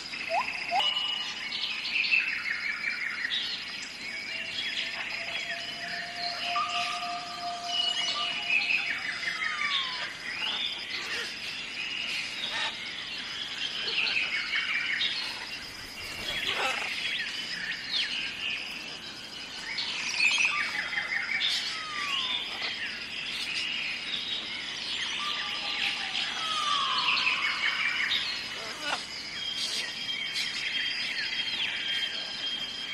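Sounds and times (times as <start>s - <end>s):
birds chirping and calling: 0.0s - 32.9s
high-pitched drone: 5.0s - 10.2s
falling whistles: 5.6s - 10.0s.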